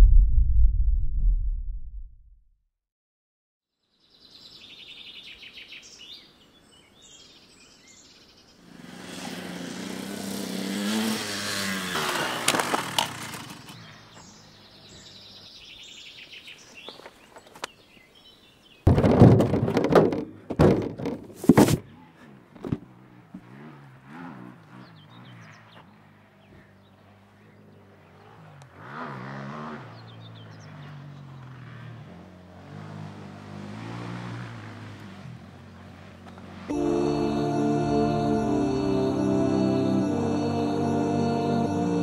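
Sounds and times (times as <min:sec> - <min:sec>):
rising and falling sound: 0:00.0 - 0:02.4, 0:36.7 - 0:42.0
birds chirping: 0:11.5 - 0:18.9, 0:24.6 - 0:28.6, 0:29.9 - 0:31.8.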